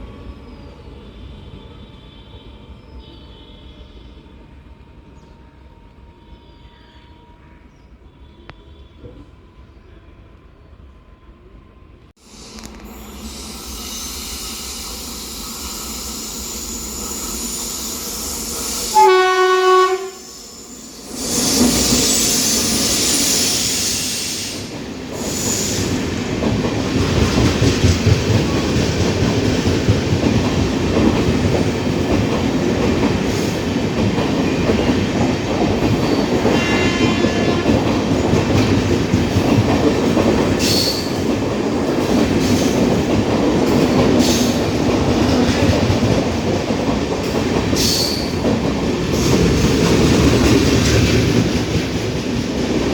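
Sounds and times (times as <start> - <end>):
train horn: 1.0 - 11.8, 18.9 - 20.6, 36.1 - 38.2
train wheels clattering on rails: 21.2 - 52.9.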